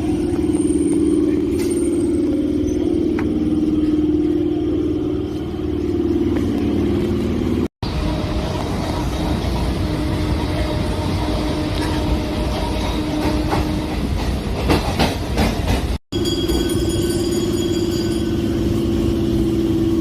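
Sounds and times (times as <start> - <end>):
train running on rails: 0.0 - 20.0.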